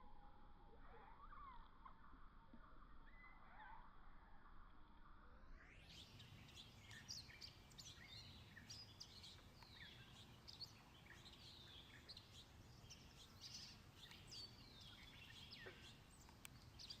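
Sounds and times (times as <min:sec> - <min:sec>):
small birds chirping: 0:05.6 - 0:17.0.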